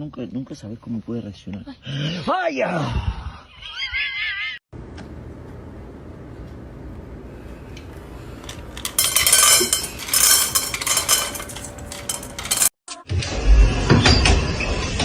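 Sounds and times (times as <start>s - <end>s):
small hard objects clinking: 8.4s - 12.7s.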